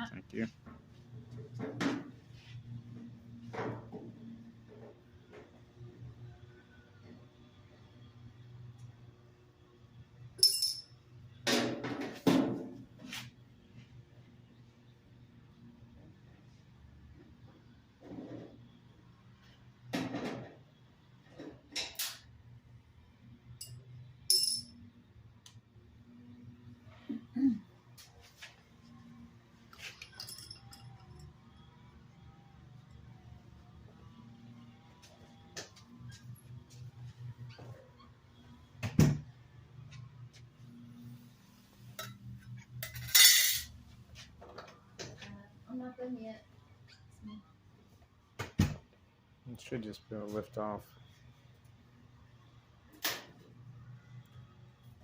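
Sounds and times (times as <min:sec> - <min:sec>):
metal clinks of screws and tools: 0:10.4 - 0:11.0, 0:23.6 - 0:24.8, 0:29.8 - 0:31.3, 0:42.8 - 0:43.7.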